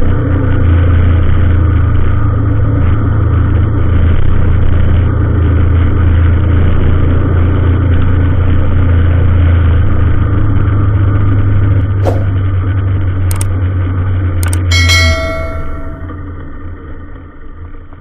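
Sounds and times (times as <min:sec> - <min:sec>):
brief clicks: 0:14.4 - 0:15.3.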